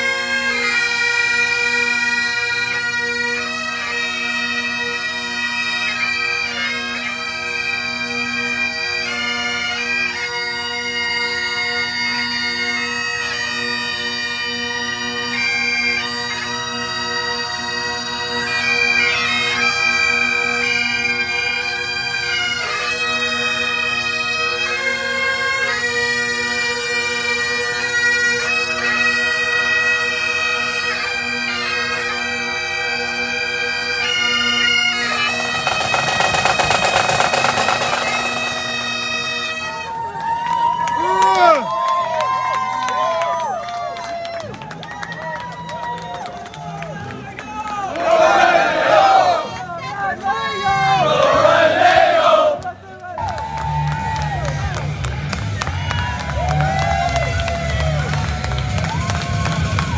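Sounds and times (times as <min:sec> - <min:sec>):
bagpipes playing: 0:00.0 - 0:40.1.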